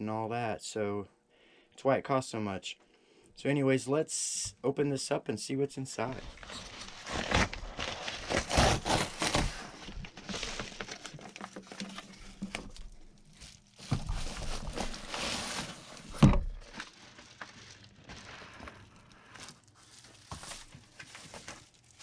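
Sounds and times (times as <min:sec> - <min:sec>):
packaging torn and crumpled: 0:06.2 - 0:22.0.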